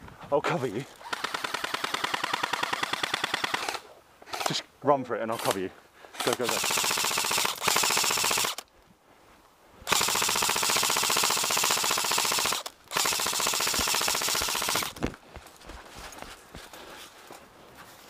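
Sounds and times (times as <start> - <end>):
airsoft gun full-auto bursts: 1.0 - 4.6, 6.2 - 8.6, 9.9 - 15.0.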